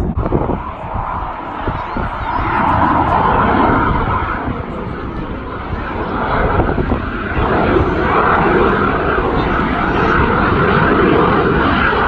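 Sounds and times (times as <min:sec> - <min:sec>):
aircraft engine overhead: 0:00.0 - 0:12.0.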